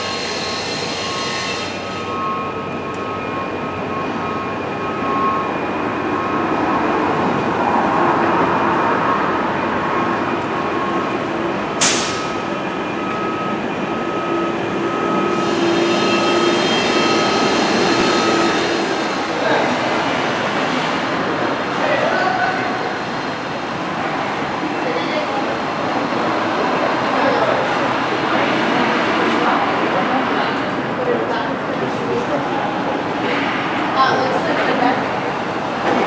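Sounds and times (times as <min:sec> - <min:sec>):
train rumbling: 0:00.0 - 0:36.0
sharp click: 0:11.8 - 0:12.3.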